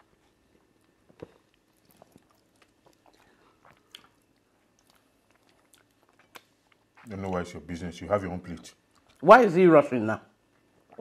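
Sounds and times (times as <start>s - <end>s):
people chewing with mouth clicks: 0.0s - 7.2s, 8.8s - 9.2s
soft lip smacks: 0.8s - 7.1s.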